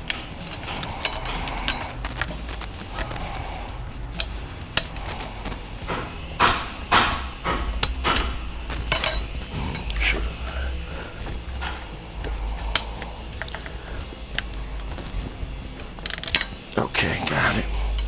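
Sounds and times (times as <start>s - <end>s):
tool clicking and scraping metal: 4.2s - 9.2s.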